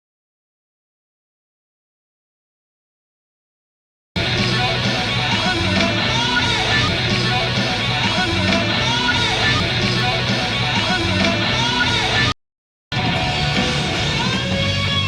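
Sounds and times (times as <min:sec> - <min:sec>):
live rock band with electric guitar: 0:04.2 - 0:12.3, 0:12.9 - 0:15.0.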